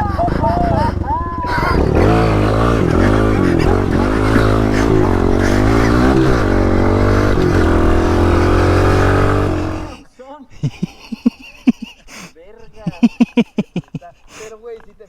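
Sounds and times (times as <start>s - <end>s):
mini bike engine revving: 0.0s - 10.0s.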